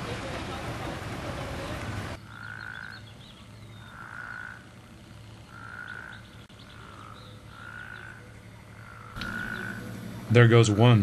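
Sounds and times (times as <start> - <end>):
frog calling: 2.2 - 11.0
faint bird chirps: 5.3 - 10.4.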